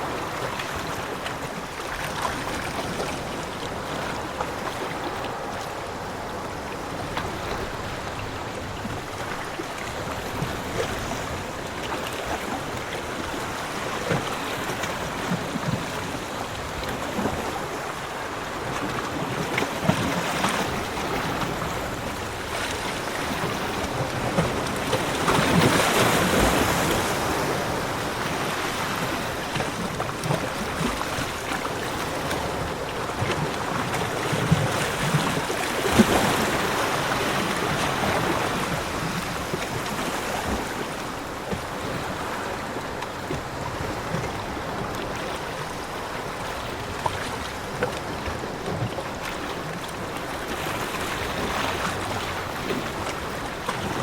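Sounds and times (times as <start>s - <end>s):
ocean waves washing on beach: 0.0s - 54.0s
wave breaking: 13.2s - 54.0s.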